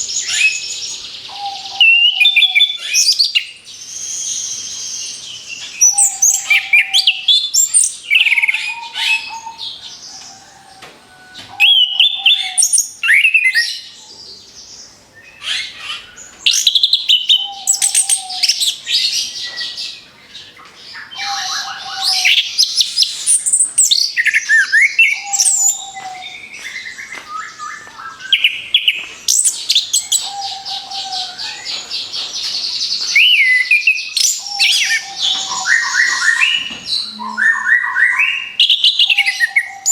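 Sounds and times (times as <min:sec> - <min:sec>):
thrush singing whistled phrases: 0:33.2 - 0:39.9.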